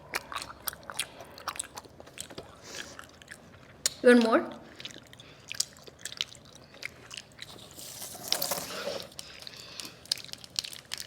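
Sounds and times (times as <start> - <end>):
chewing juicy fruit: 0.0 - 11.0
wet mouth clicks and smacks: 4.8 - 7.3.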